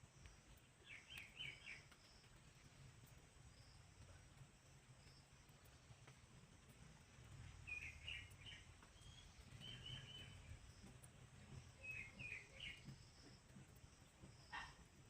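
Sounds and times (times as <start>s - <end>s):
faint bird chirps: 0.0s - 2.4s, 7.6s - 13.5s.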